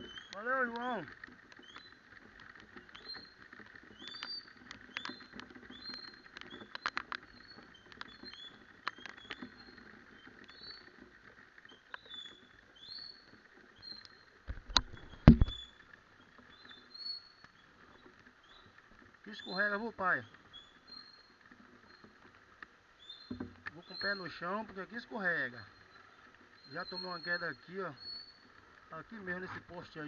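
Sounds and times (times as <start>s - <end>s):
rain tapping on microphone: 0.0s - 30.0s
short high squeaks and clicks: 11.6s - 15.9s
heavy thump: 15.2s - 15.6s.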